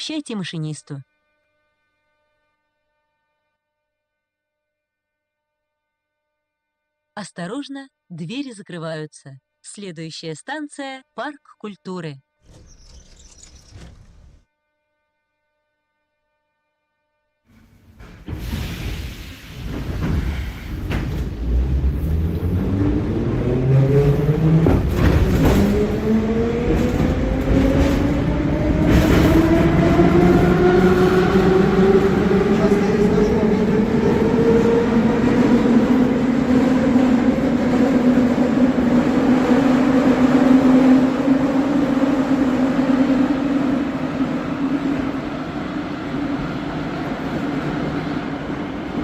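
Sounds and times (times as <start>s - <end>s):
train traction motor whine: 12.4s - 49.0s
train running rumble: 17.8s - 49.0s.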